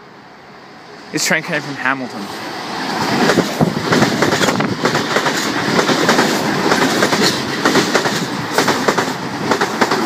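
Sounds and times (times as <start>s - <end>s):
train wheels rushing on rail: 0.0s - 10.0s
clacking over rail joints: 3.2s - 10.0s.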